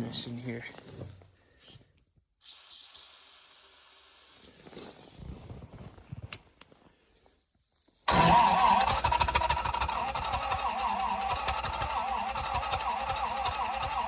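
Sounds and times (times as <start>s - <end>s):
faint handling rustles: 0.0s - 2.0s, 4.5s - 8.0s.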